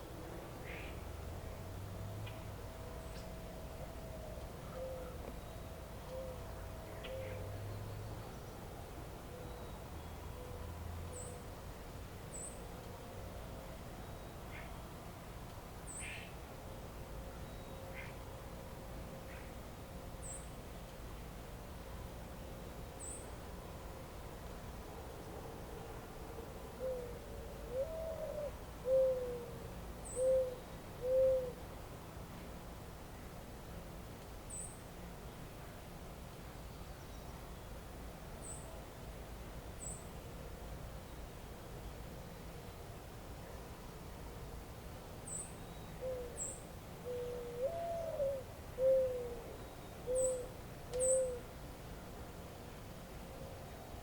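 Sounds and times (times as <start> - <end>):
low outdoor hiss: 0.0 - 54.0
bird hooting: 3.9 - 7.4, 26.8 - 31.6, 46.0 - 51.5
small bird chirp: 49.6 - 51.4.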